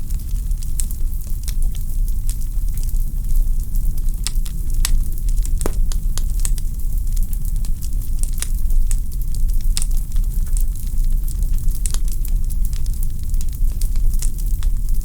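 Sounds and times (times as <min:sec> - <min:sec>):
low rumble of flames: 0:00.0 - 0:15.0
logs crackling and popping: 0:03.9 - 0:15.0.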